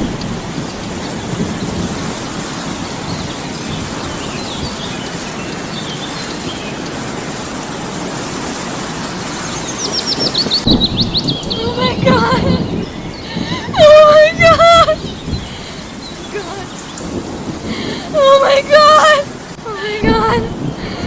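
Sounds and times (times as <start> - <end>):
faint bird chirps: 0.0 - 7.6, 14.8 - 17.7
steady rain: 0.0 - 21.0.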